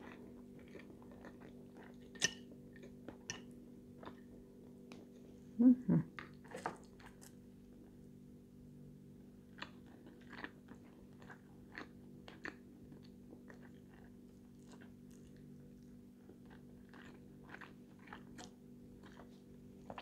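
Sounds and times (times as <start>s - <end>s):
person chewing food: 0.0s - 5.2s, 9.4s - 20.0s.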